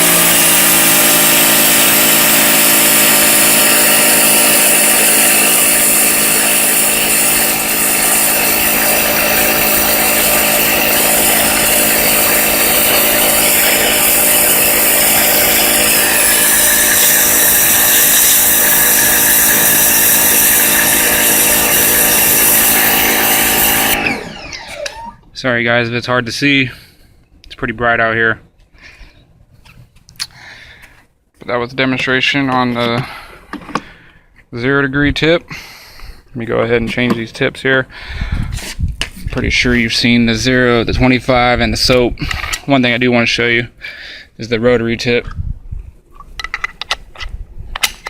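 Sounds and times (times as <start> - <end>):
pressure washer whining: 0.0 - 25.2.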